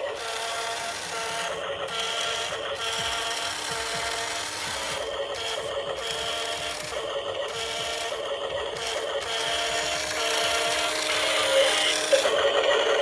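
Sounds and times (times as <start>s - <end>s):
small electric motors whining: 0.0s - 13.0s.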